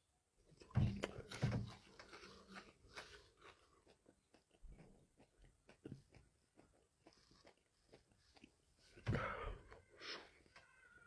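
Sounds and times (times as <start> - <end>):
wet mouth clicks chewing: 2.0 - 9.0
breathy burst: 9.0 - 10.4.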